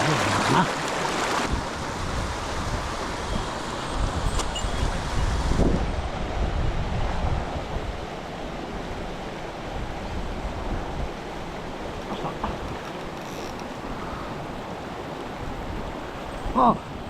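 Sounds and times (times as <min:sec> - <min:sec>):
river water rushing: 0:00.0 - 0:17.0
wind buffeting microphone: 0:01.0 - 0:08.1, 0:13.6 - 0:17.0.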